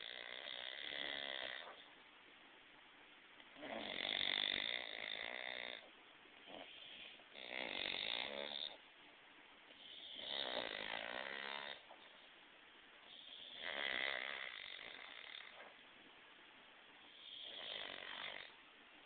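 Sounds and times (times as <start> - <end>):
dogs snoring: 0.0 - 1.9, 3.5 - 8.8, 9.7 - 12.0, 13.0 - 15.8, 17.1 - 18.6.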